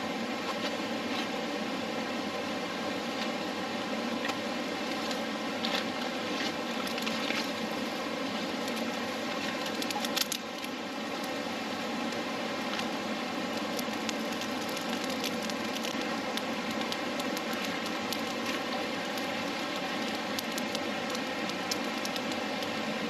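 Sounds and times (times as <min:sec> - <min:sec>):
campfire crackling: 0:06.5 - 0:23.0.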